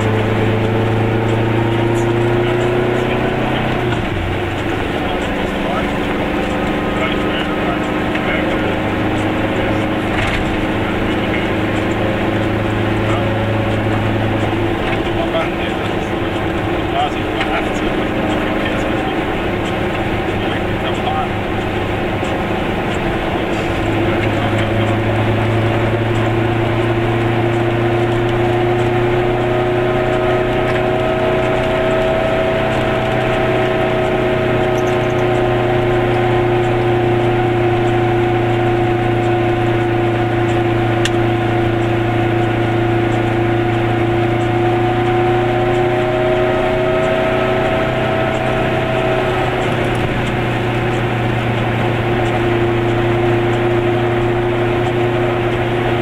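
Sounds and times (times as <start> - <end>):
small car engine droning: 0.0 - 56.0.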